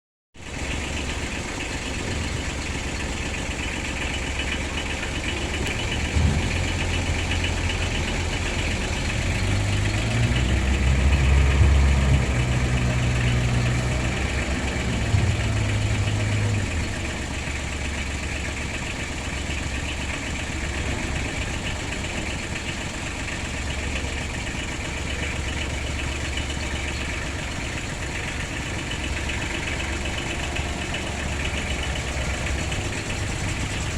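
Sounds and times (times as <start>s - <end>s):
small engines idling: 0.4s - 33.9s
engine revving: 4.7s - 17.3s, 25.0s - 33.9s.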